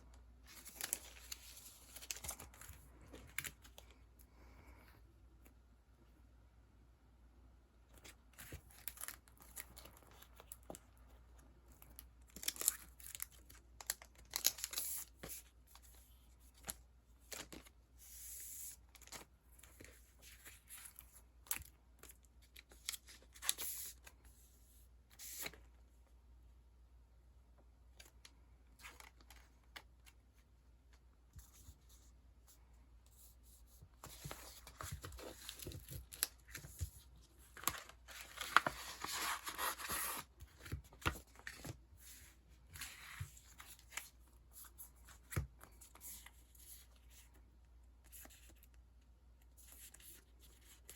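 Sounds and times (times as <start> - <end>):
sticker sheets rustling and crinkling: 0.4 - 4.0, 33.2 - 47.4.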